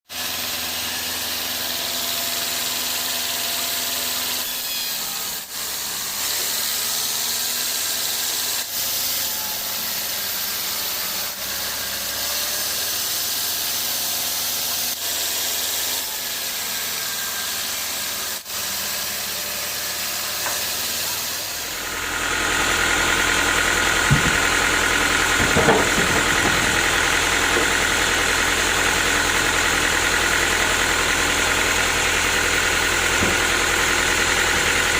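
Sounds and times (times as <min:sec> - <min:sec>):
sawmill machinery running: 0:00.1 - 0:34.9
short knocks: 0:24.1 - 0:24.5, 0:25.4 - 0:26.8.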